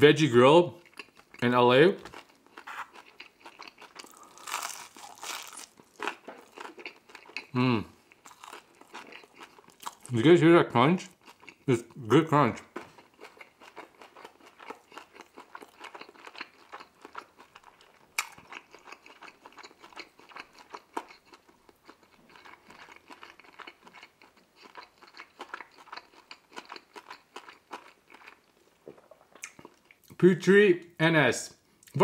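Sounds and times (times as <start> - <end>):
chewing crunchy pizza crust: 0.8 - 10.3, 11.0 - 30.1.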